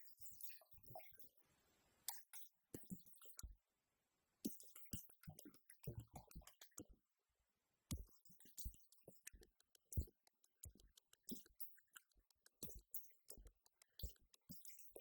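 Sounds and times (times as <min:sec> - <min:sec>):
faint irregular clicks: 0:07.9 - 0:15.0.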